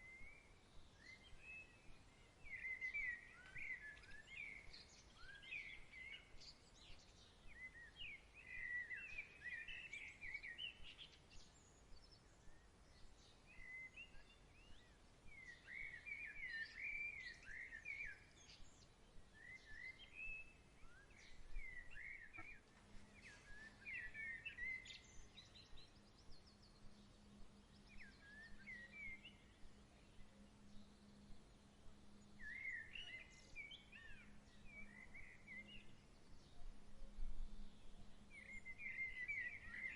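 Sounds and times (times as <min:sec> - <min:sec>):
faint low hum: 0:00.0 - 0:39.8
small songbirds singing: 0:00.0 - 0:39.9
faint hiss: 0:18.4 - 0:25.3.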